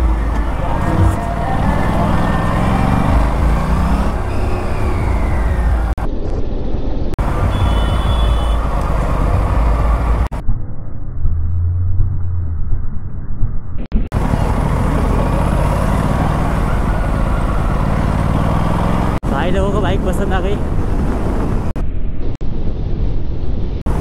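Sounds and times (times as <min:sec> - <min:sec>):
motorcycle engine running: 0:00.0 - 0:06.0, 0:14.1 - 0:19.4
road and wind noise: 0:00.0 - 0:24.0.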